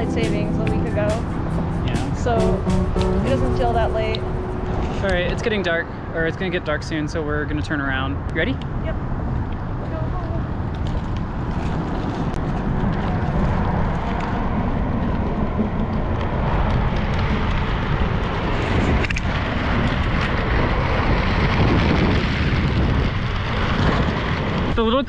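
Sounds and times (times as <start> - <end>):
wind on microphone: 8.6 - 25.0.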